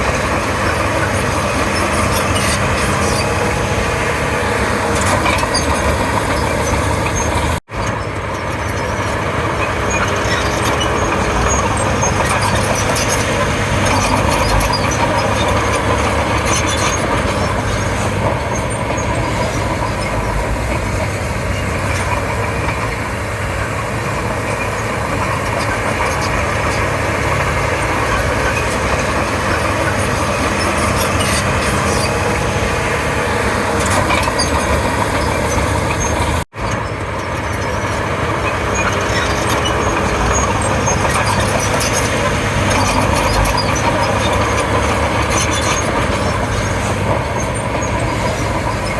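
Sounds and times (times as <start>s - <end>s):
bulldozer diesel engine running: 0.0s - 48.9s.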